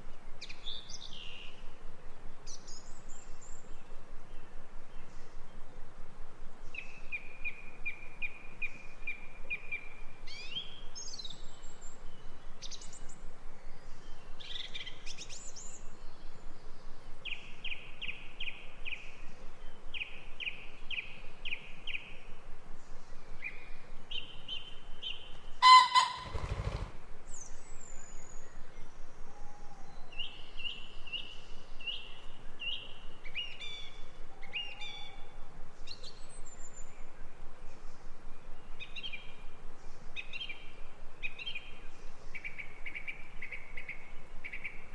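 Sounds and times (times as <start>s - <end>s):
steady background hiss: 0.0s - 44.9s
songbirds singing: 6.6s - 44.9s
loud bird call: 25.6s - 27.0s.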